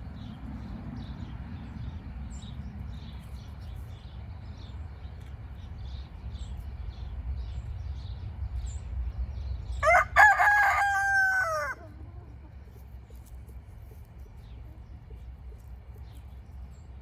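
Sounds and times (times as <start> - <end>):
rooster crowing: 9.8 - 12.0.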